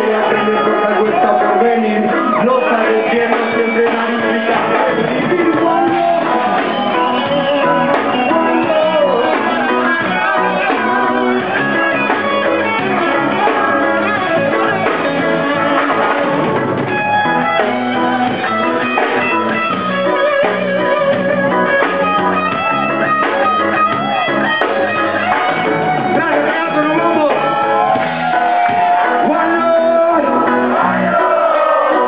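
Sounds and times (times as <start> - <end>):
guitar: 0.0 - 32.0
reggae band playing: 0.0 - 32.0.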